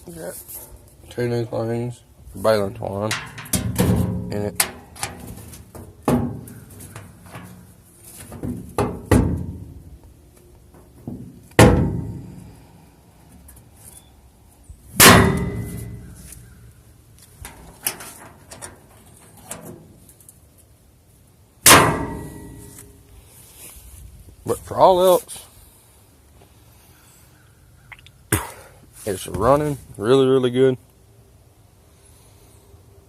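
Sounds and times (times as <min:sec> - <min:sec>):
heavy metal clangs from baler: 0:03.1 - 0:07.6, 0:08.4 - 0:09.8, 0:11.1 - 0:12.5, 0:15.0 - 0:16.2, 0:21.6 - 0:22.9.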